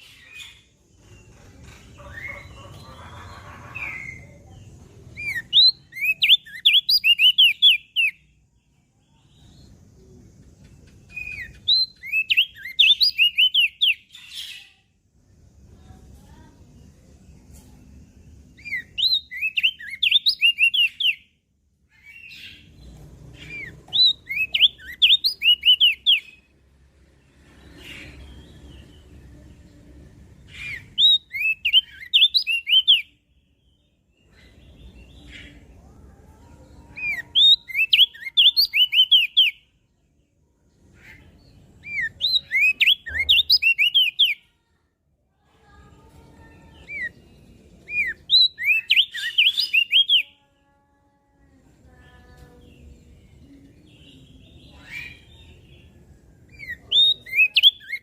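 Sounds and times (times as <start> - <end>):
bird chirping song: 0.0 - 58.0.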